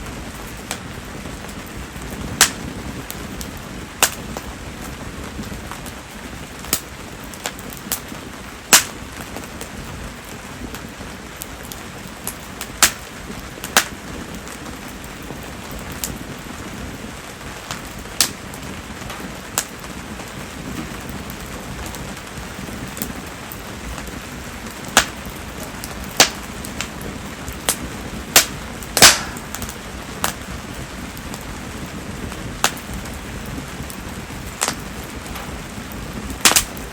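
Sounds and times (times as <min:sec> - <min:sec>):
fire clicks and snaps: 0:00.0 - 0:36.9
steady rain: 0:00.0 - 0:36.9.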